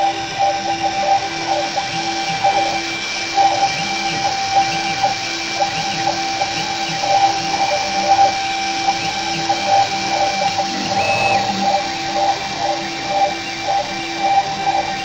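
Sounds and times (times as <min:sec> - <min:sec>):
engraving machine motor whine: 0:00.7 - 0:15.0
brief higher tone: 0:10.8 - 0:11.9.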